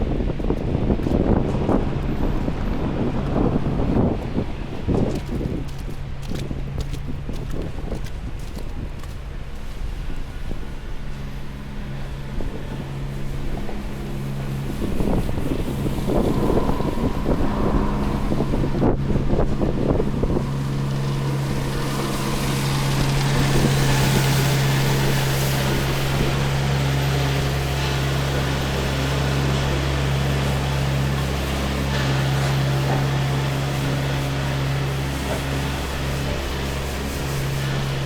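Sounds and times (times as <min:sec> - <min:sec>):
vehicle engine humming: 0:00.0 - 0:38.0
wind noise on microphone: 0:00.0 - 0:38.0
rushing noise: 0:10.8 - 0:38.0.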